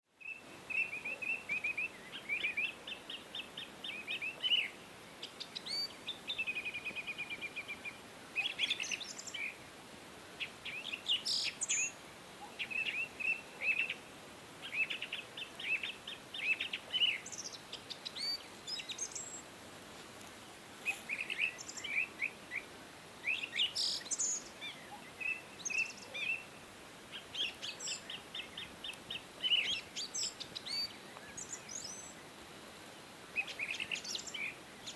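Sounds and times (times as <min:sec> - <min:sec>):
faint background hiss: 0:00.0 - 0:34.9
small birds chirping: 0:00.1 - 0:09.7, 0:10.4 - 0:19.5, 0:20.8 - 0:34.9.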